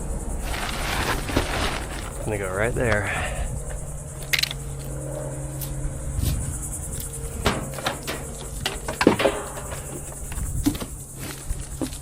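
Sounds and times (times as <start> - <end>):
crickets chirping: 0.0 - 12.0
steady low hum: 0.0 - 12.0
fan knocking and rattling: 0.4 - 3.9, 6.2 - 12.0.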